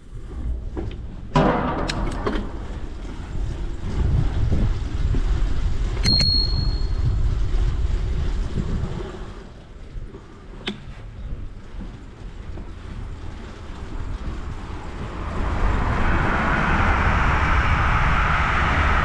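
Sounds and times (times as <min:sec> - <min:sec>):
low rumble from riding: 0:00.0 - 0:19.0
bicycle bell ding: 0:06.0 - 0:07.2.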